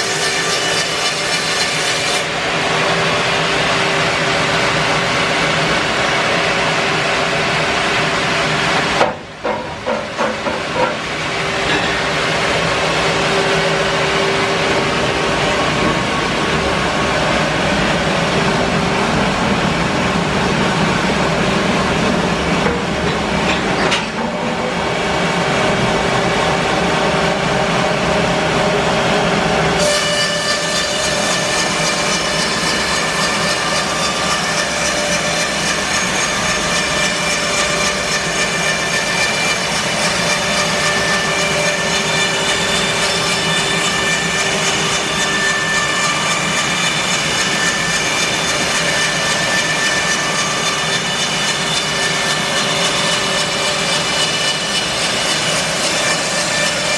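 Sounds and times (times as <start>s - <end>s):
bandsaw mill sawing wood: 0.0s - 20.0s, 29.7s - 56.9s
high whine: 10.8s - 29.8s.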